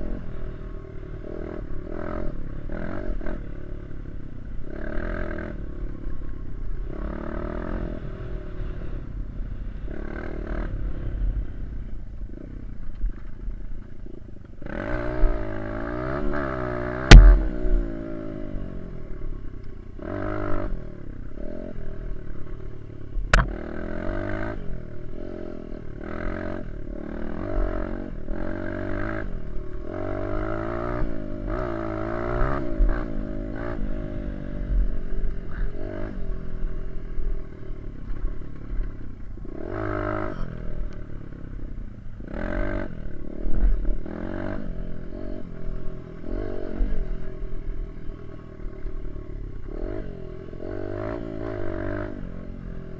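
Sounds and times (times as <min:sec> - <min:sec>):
dirt bike engine revving: 0:00.0 - 0:12.7, 0:14.0 - 0:52.9
sharp click: 0:17.1 - 0:17.5, 0:23.3 - 0:23.5.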